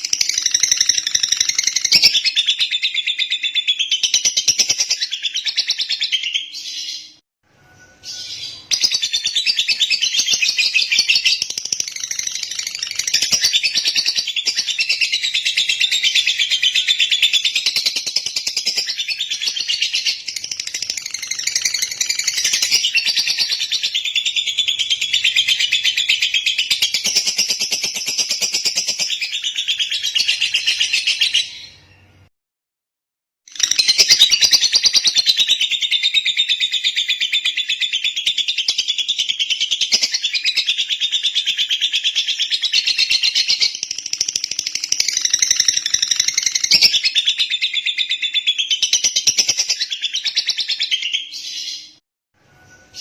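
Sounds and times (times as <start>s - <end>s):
lovebird chattering trill: 39.9s - 47.4s.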